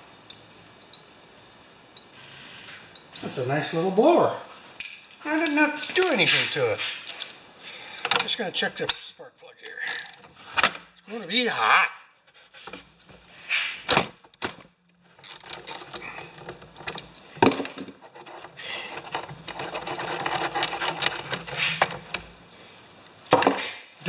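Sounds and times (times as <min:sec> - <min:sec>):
spark plug scraping out of threads: 0:18.0 - 0:22.3.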